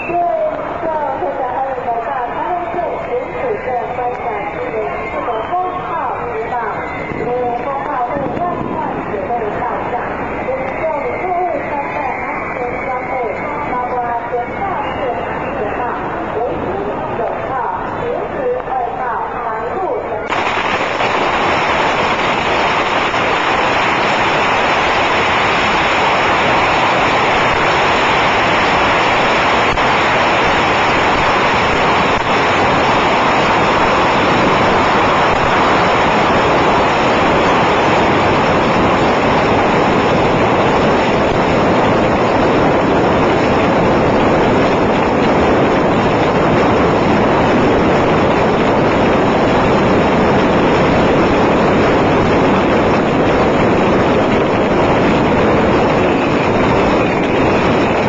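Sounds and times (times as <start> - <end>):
bottle rockets hissing and crackling: 20.3 - 40.5.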